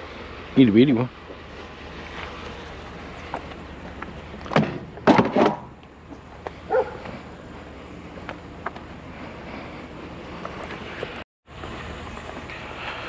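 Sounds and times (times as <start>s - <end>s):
steady low hum: 0.0s - 13.0s
scrap items knocking and clattering: 4.5s - 5.7s
dog barking: 6.7s - 7.0s.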